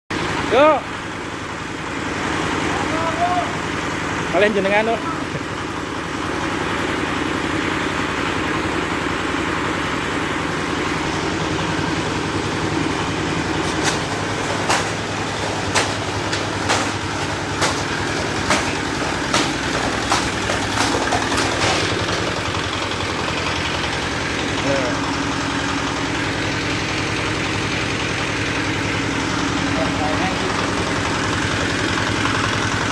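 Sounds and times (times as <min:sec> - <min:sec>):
bamboo splitting machine humming: 0:00.2 - 0:32.9
bamboo cracking: 0:13.4 - 0:22.4.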